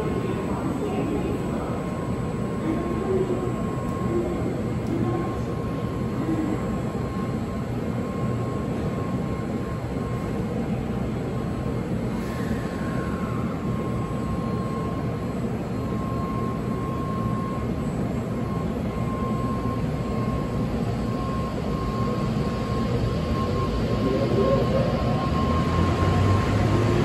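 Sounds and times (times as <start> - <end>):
steady high tone: 12.2 - 27.0
whine falling in pitch: 22.8 - 27.0.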